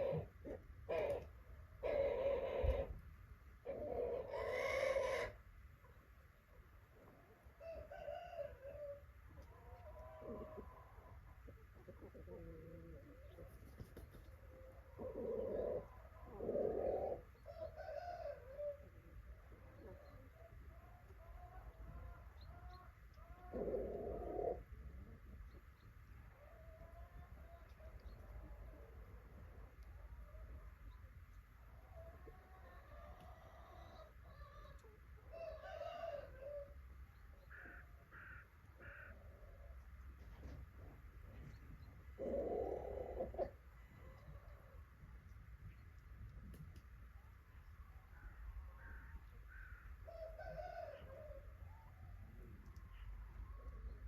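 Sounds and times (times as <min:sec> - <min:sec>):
pigeons cooing: 0:00.0 - 0:03.0, 0:03.6 - 0:05.4, 0:09.8 - 0:20.4, 0:23.2 - 0:25.4, 0:42.1 - 0:44.7
faint bird calls: 0:37.4 - 0:39.5, 0:48.1 - 0:51.1.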